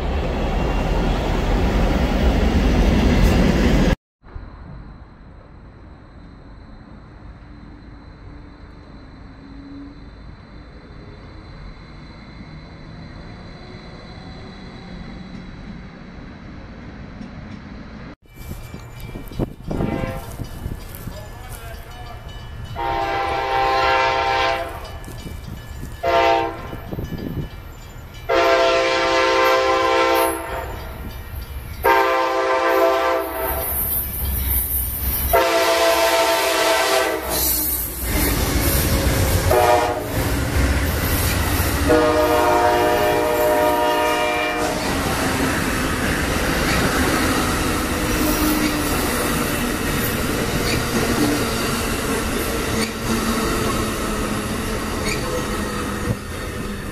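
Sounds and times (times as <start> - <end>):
train cars rumbling and clattering: 0.0 - 56.9
train air horn blasts: 19.7 - 20.4, 22.8 - 24.9, 26.0 - 26.9, 28.3 - 30.9, 31.8 - 33.8, 35.3 - 37.8, 39.4 - 40.2, 41.8 - 44.8.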